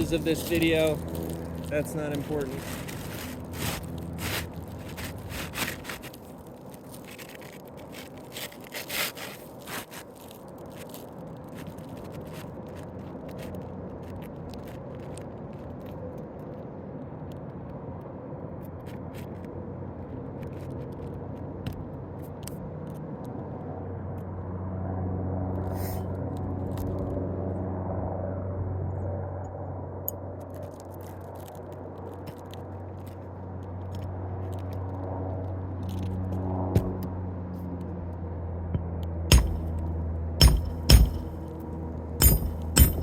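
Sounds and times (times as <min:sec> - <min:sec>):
low engine hum: 0:00.0 - 0:06.8, 0:33.4 - 0:43.0
roof shingle scraping and crackling: 0:00.0 - 0:15.7.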